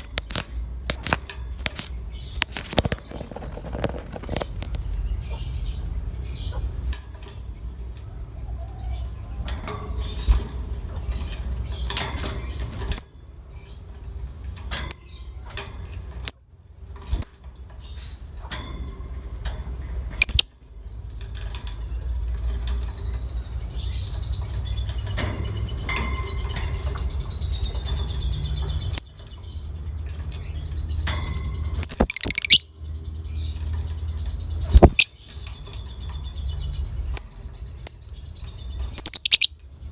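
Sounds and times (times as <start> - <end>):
sharp clicks: 0.0 - 5.0, 31.0 - 32.7, 34.6 - 35.6
lovebird chirping: 0.0 - 15.4, 20.2 - 20.6, 22.0 - 39.9.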